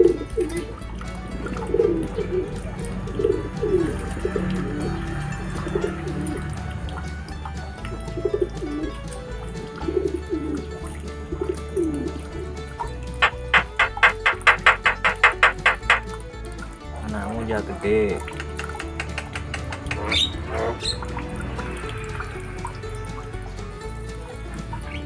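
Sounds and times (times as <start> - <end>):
background music: 0.0 - 25.0
bird low calls: 13.2 - 16.0, 18.3 - 23.0.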